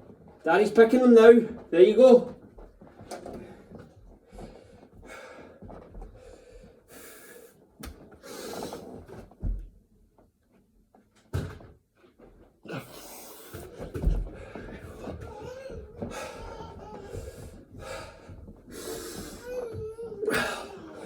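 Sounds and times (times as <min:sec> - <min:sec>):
man breathing heavily: 0:03.6 - 0:07.6, 0:08.2 - 0:09.0, 0:12.7 - 0:21.0.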